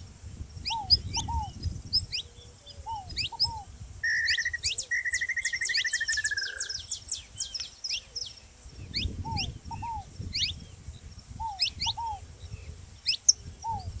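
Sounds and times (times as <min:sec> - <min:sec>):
finches calling with chips and trill: 0:00.3 - 0:14.0
dove cooing: 0:00.6 - 0:06.8, 0:09.0 - 0:10.1, 0:11.4 - 0:14.0.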